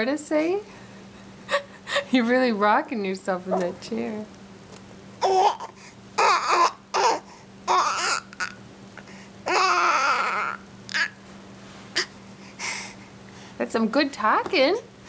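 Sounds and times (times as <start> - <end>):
baby cooing and babbling: 5.2 - 8.6, 9.4 - 11.2.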